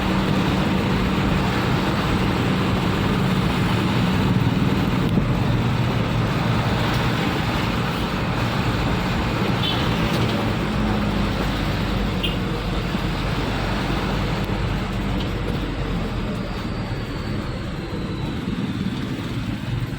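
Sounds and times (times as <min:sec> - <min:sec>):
road and traffic noise: 0:00.0 - 0:19.9
vehicle engine running: 0:00.0 - 0:19.9.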